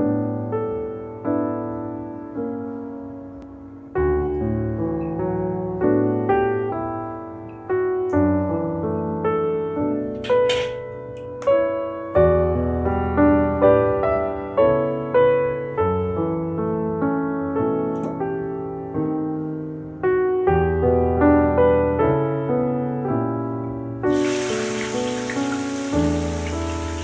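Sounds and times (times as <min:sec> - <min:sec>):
piano music: 0:00.0 - 0:27.0
oil sizzling in a wok: 0:24.1 - 0:27.0.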